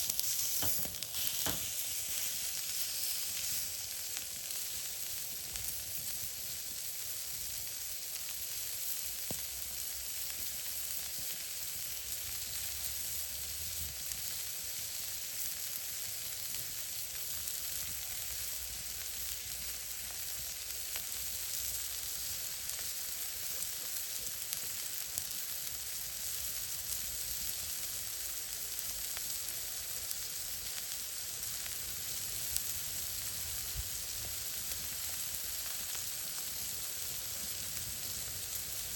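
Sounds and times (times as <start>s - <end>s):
campfire pops and crackles: 0.0s - 6.6s
food sizzling in a pan: 0.0s - 38.9s.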